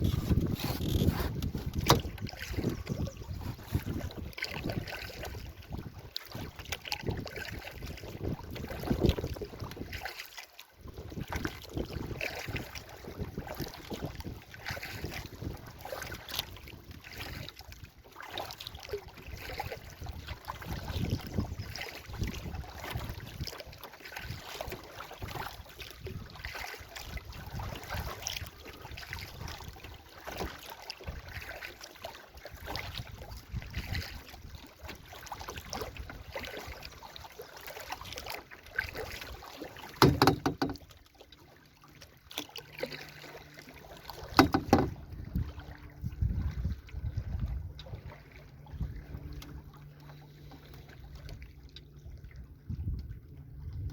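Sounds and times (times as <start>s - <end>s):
paddle splashing in water: 0.0s - 53.9s
sharp loud knocks: 40.0s - 40.8s, 44.4s - 45.0s.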